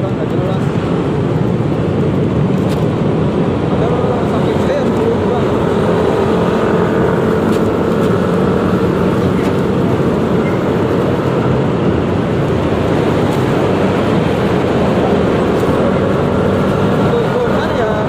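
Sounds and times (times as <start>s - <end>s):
road and wind noise: 0.0s - 18.0s
scooter engine droning: 0.0s - 18.0s.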